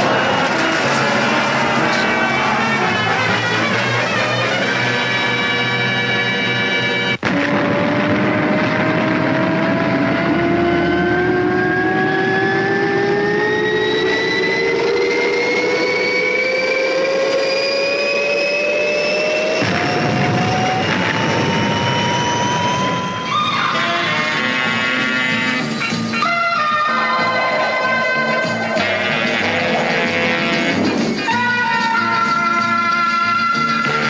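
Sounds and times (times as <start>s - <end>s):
rushing noise: 0.0s - 5.3s, 7.2s - 31.8s
loud engine roar: 0.0s - 6.5s, 7.1s - 32.7s
whine climbing in pitch: 7.2s - 33.6s.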